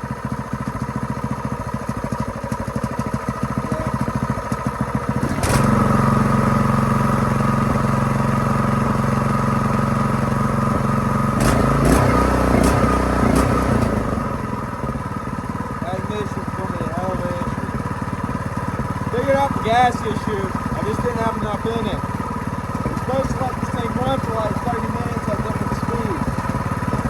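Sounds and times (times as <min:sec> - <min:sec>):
small engine running unevenly: 0:00.0 - 0:27.0
engine clicks: 0:00.5 - 0:05.8, 0:15.8 - 0:27.0.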